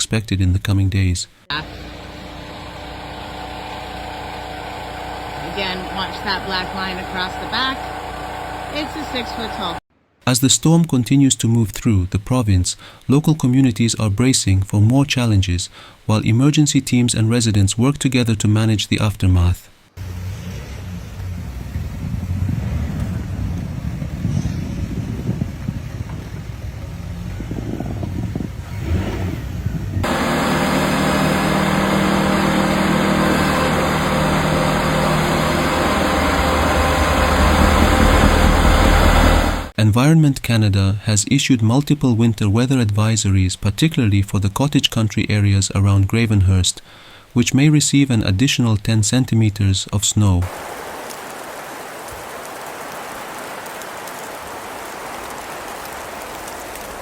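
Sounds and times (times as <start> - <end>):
steady crackling hiss: 0.1 - 27.4, 40.4 - 57.0
vehicle engine running: 1.5 - 9.8, 20.0 - 39.8.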